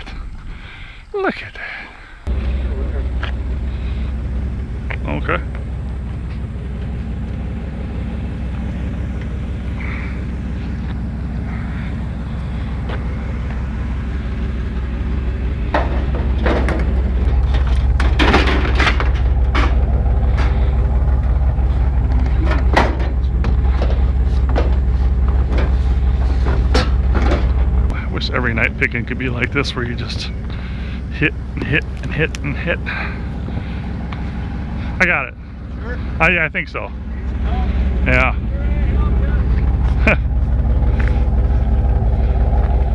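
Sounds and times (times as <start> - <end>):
truck engine droning: 0.0 - 42.9
knocks and rattles: 15.5 - 28.0.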